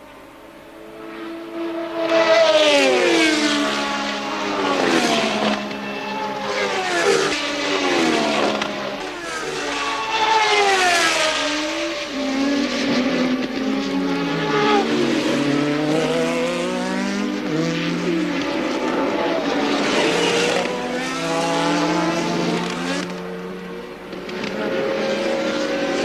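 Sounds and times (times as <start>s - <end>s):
racing cars passing by: 0.1s - 26.0s.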